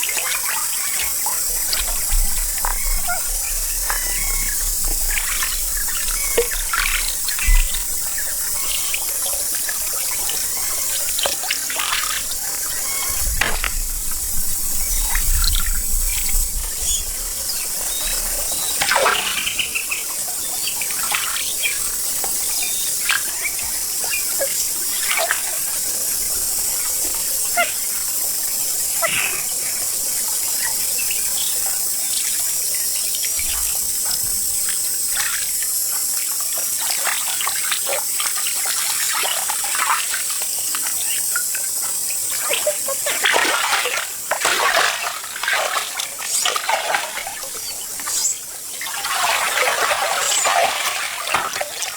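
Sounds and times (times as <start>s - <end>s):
water splashing and sloshing: 0.0s - 51.9s
high-pitched hiss: 0.6s - 36.0s.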